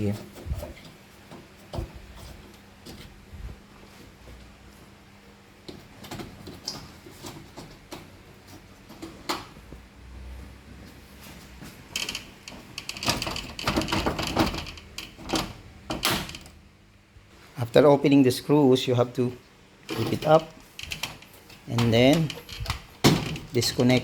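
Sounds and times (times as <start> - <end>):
clicks and rattles of handled parts: 12.0 - 16.5, 19.9 - 24.0.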